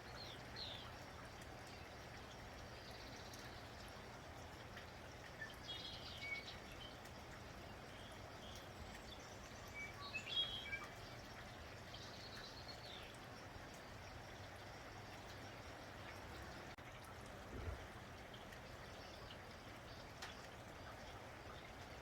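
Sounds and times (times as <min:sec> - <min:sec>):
small birds chirping: 0:00.0 - 0:04.0, 0:05.0 - 0:16.8
light rain: 0:00.0 - 0:22.0.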